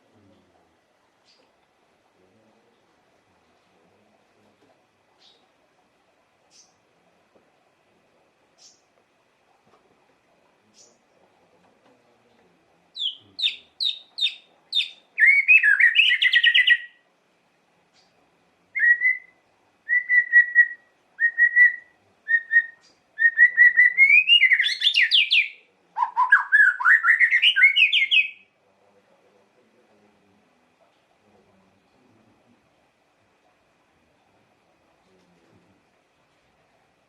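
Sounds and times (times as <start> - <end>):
bird singing shrill varied song: 13.0 - 17.0, 18.8 - 28.5.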